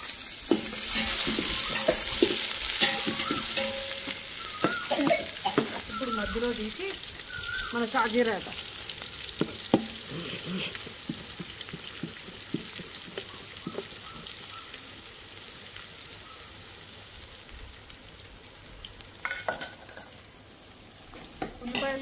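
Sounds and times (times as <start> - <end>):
onions sizzling in hot oil: 0.0 - 22.0
ladle stirring and knocking pan: 0.3 - 6.2, 9.2 - 14.4, 19.2 - 20.1.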